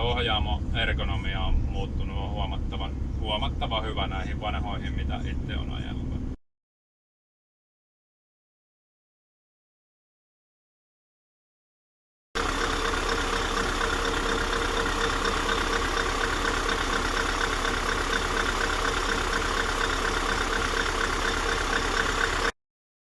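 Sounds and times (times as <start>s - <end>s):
diesel engine running steadily: 0.0s - 6.4s, 12.4s - 22.6s.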